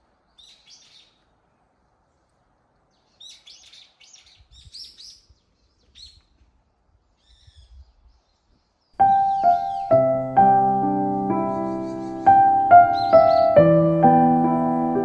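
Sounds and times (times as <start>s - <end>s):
small birds chirping: 0.0s - 15.0s
piano music: 9.0s - 15.0s.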